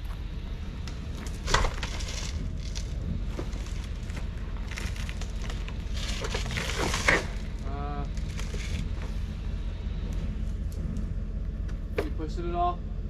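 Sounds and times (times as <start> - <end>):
vehicle engine idling: 0.0 - 13.0
branches crackling and snapping: 0.8 - 9.0.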